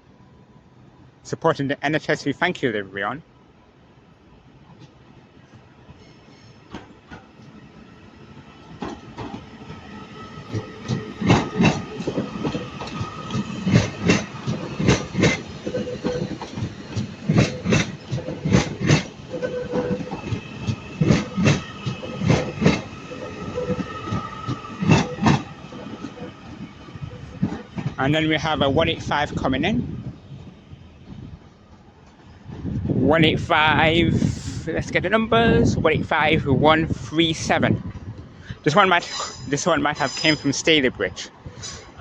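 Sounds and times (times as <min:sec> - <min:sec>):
train wheels clicking over rail joints: 0:08.3 - 0:28.2.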